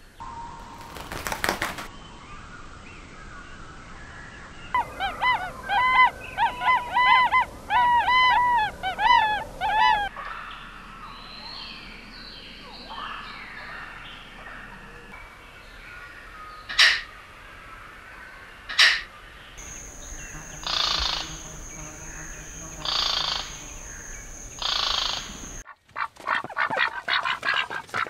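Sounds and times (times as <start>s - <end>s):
birds calling loudly: 4.7s - 15.1s, 15.9s - 17.2s, 18.6s - 28.0s
faint bird chirps and whistles: 19.6s - 25.6s.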